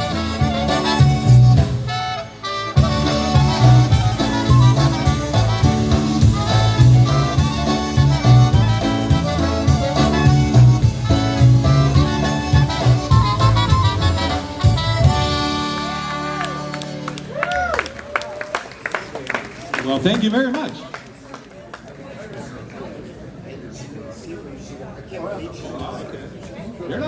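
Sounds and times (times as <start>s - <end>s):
polka band playing: 0.0s - 17.6s.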